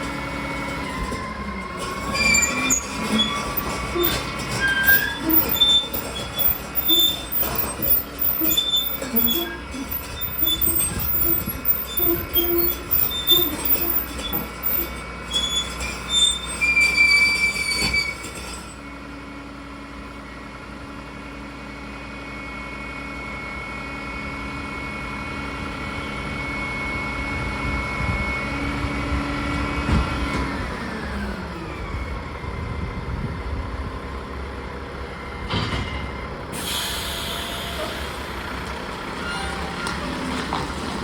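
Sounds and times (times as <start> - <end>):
metal squealing and scraping: 0.7 - 18.8, 39.0 - 41.0.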